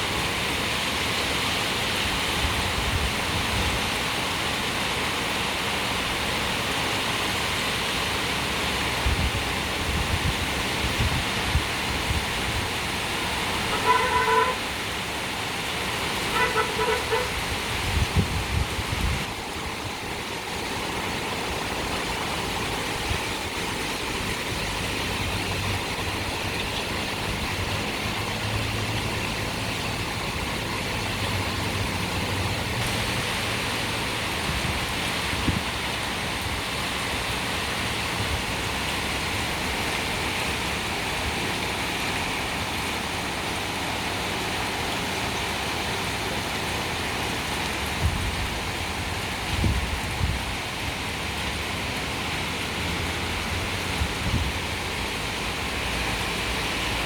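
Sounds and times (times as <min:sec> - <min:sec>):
heavy rain on street: 0:00.0 - 0:57.0
vehicle engine humming: 0:20.8 - 0:34.8.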